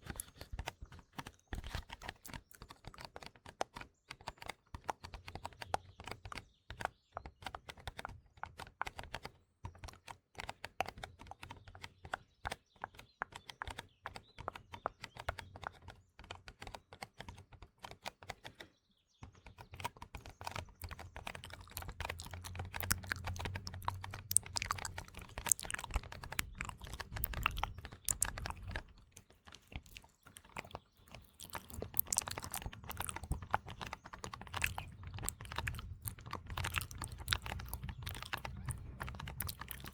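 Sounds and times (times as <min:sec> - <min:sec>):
wet mouth clicks and smacks: 0:00.0 - 0:00.6, 0:01.6 - 0:02.8, 0:20.8 - 0:39.9.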